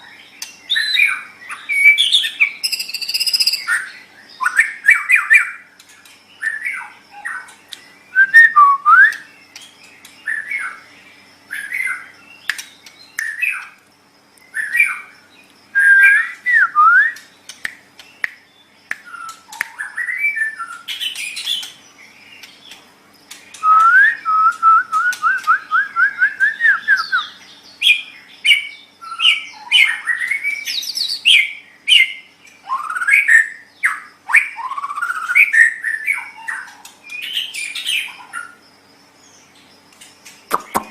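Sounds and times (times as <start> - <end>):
faint steady hum: 0.0 - 40.9
bird singing whistled phrases: 0.7 - 5.6, 8.1 - 9.4, 15.8 - 17.3, 19.0 - 21.7, 23.5 - 38.1.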